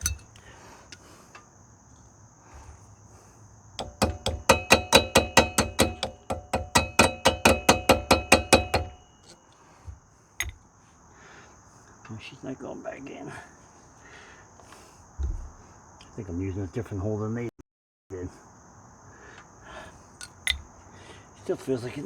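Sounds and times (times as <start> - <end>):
cricket trill: 0.0 - 17.5, 18.1 - 22.0
hammer blows on metal: 3.8 - 9.4.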